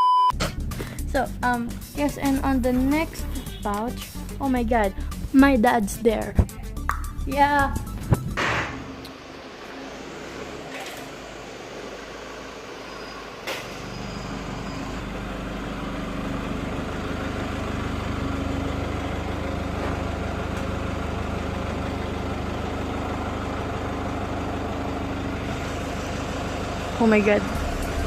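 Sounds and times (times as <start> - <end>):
engine idling: 13.8 - 28.0.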